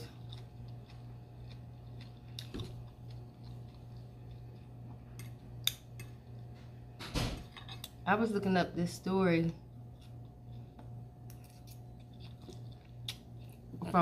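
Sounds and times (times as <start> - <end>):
quiet chewing: 0.0 - 6.7, 9.8 - 13.8.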